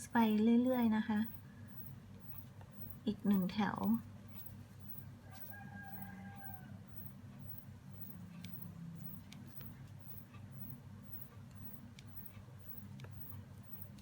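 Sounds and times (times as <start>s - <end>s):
steady low hum: 0.0s - 14.0s
faint clicks: 3.8s - 14.0s.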